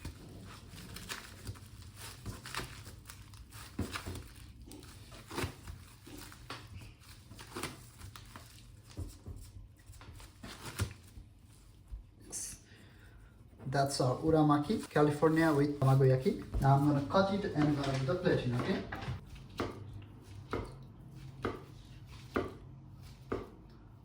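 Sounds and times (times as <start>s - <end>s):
plastic crinkling and rustling: 0.0s - 12.1s, 13.8s - 19.3s.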